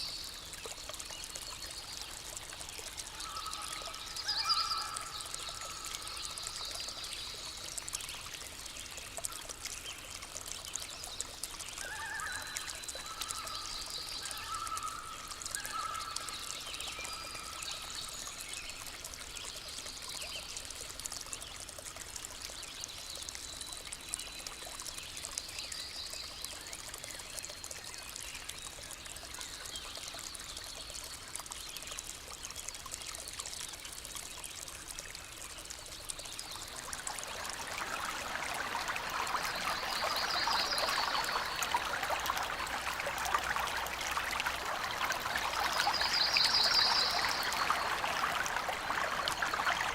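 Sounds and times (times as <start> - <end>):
stream water trickling: 0.0 - 49.9.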